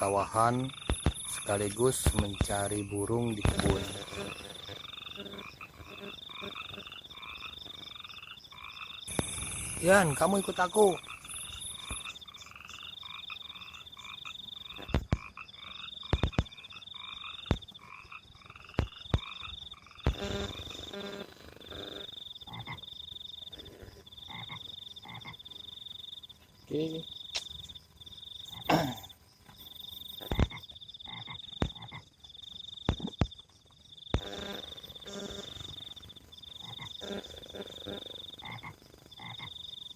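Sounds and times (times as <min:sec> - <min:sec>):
frogs croaking: 0:00.0 - 0:39.9
frogs trilling: 0:00.0 - 0:39.9
sharp clicks and knocks: 0:16.1 - 0:16.6.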